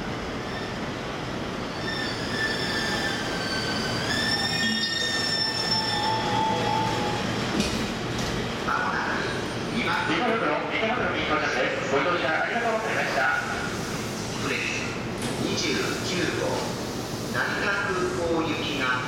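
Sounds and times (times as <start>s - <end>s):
train rolling noise: 0.0s - 11.5s.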